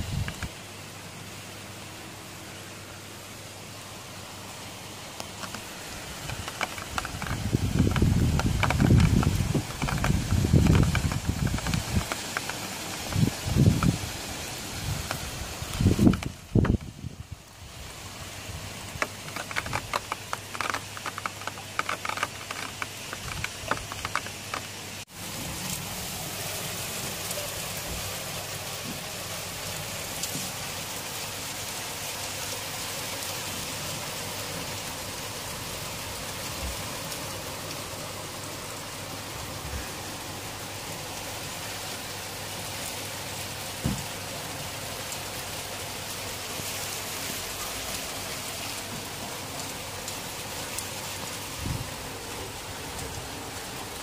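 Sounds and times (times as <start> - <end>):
raindrops tapping on window: 0.0 - 0.5, 5.1 - 17.1, 18.7 - 25.0, 43.6 - 45.5
heavy rain hissing: 0.0 - 54.0.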